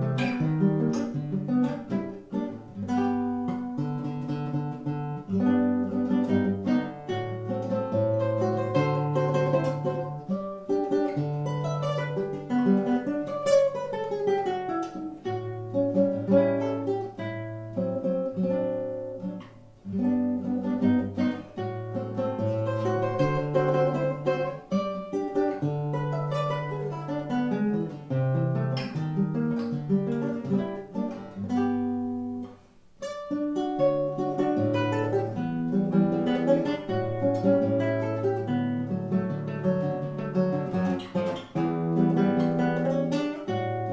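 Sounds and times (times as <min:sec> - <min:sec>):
acoustic guitar melody: 0:00.0 - 0:43.9.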